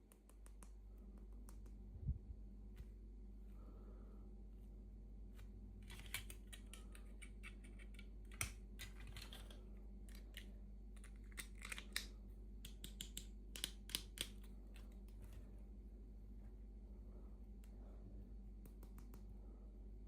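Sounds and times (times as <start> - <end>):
plastic toy pieces clicking: 5.8 - 14.5.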